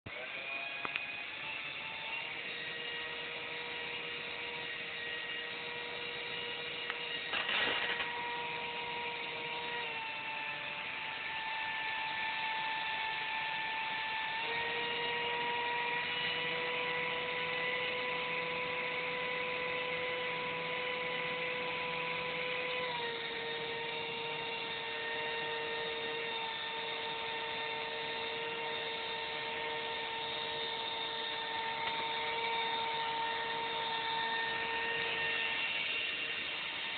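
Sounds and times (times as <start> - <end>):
electric motors and propellers whirring: 0.1 - 36.9
short crackle: 7.3 - 8.2.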